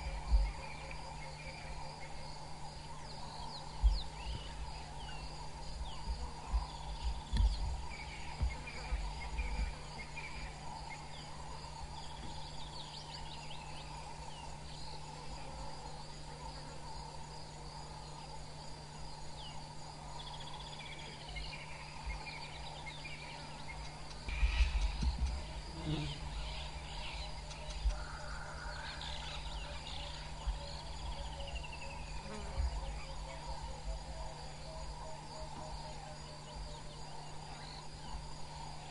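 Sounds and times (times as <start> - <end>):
insects chirring: 0.0 - 38.9
low rumbles on microphone: 5.5 - 10.2, 24.3 - 26.4.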